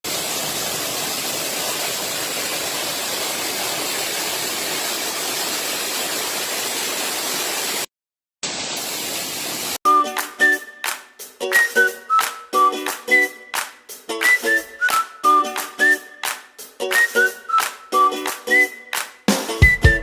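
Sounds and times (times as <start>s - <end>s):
waterfall rushing: 0.0s - 9.8s
music: 9.9s - 20.0s.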